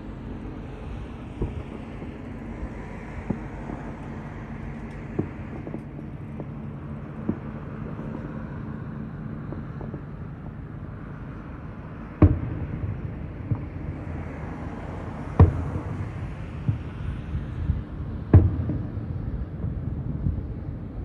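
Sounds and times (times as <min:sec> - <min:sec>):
low background rumble: 0:00.0 - 0:21.0
faint fireworks pops: 0:01.4 - 0:04.0, 0:04.8 - 0:08.3, 0:09.4 - 0:10.2, 0:12.2 - 0:20.4
fireworks booming: 0:12.2 - 0:14.2, 0:15.0 - 0:17.1, 0:18.3 - 0:20.4.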